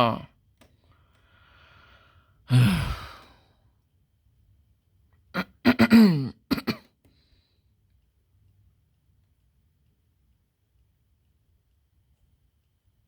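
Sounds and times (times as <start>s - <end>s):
person clearing throat: 5.4s - 6.9s
person coughing: 5.4s - 7.0s.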